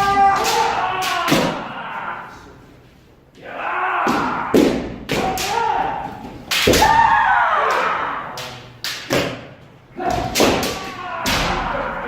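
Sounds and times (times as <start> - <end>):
long shouts: 0.0 - 2.4, 10.0 - 12.0
bamboo sword strikes: 6.5 - 7.1, 10.0 - 11.7.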